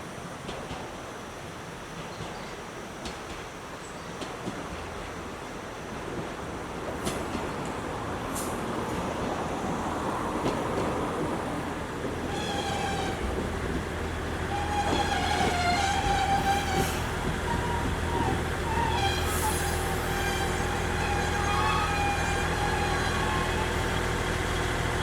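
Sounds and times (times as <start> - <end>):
diesel train rumbling: 0.0 - 25.0
high steady squeal: 12.2 - 13.7, 14.4 - 25.0.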